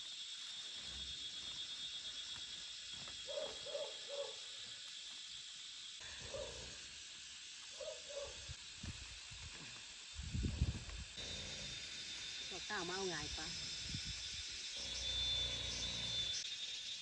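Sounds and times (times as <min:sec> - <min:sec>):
high buzz of insects: 0:00.0 - 0:17.0
bird hooting: 0:03.2 - 0:04.5, 0:06.1 - 0:06.8, 0:07.8 - 0:08.4.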